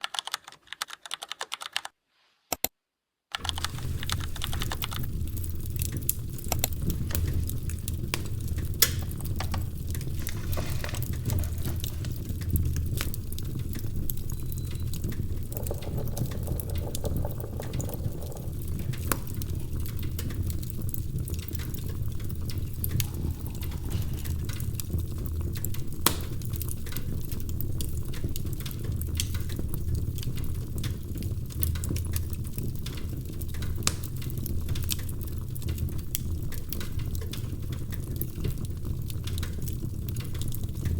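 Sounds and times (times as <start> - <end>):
wood fire crackling: 3.3 - 40.9
low steady rumble: 15.1 - 26.0.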